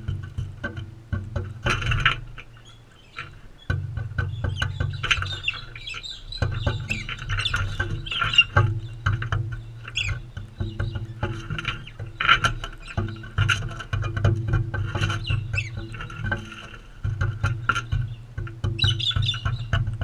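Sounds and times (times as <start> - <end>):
beaks pecking and cracking seed: 1.6 - 20.0
soft chattering bird calls: 1.6 - 20.0.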